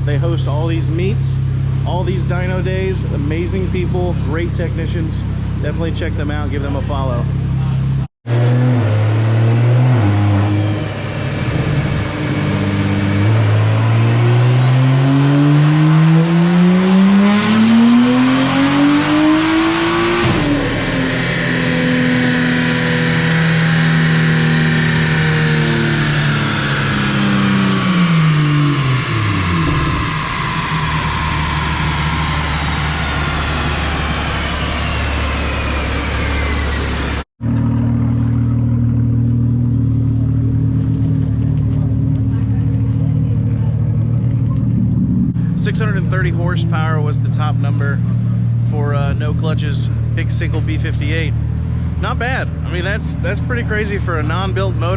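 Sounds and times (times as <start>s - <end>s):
car engine revving on dyno: 6.7s - 54.9s
turbo whine winding down: 8.4s - 49.5s.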